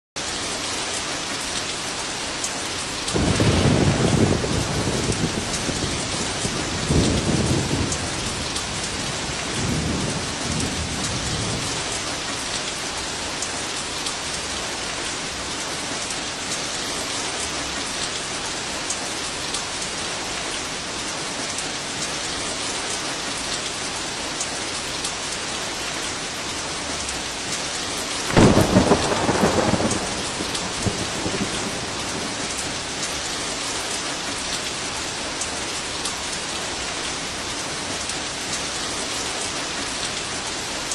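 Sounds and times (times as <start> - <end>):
heavy rain falling: 0.2 - 40.9
loud thunderclap: 3.1 - 11.9, 28.3 - 33.1
thunder rumbling: 3.1 - 12.5, 28.1 - 35.8.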